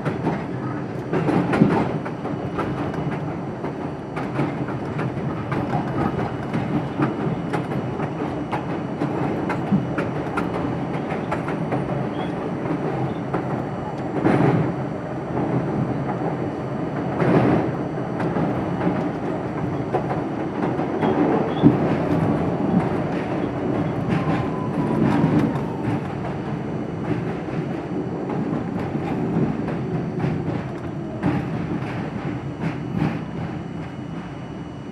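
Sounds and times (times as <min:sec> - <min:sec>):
subway train rumble: 0:00.0 - 0:34.9.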